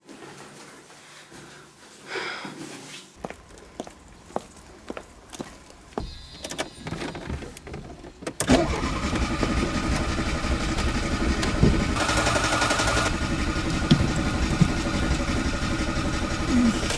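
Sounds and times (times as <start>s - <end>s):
starter motor cranking engine: 6.3s - 16.9s
knocks and clicks: 10.8s - 16.9s.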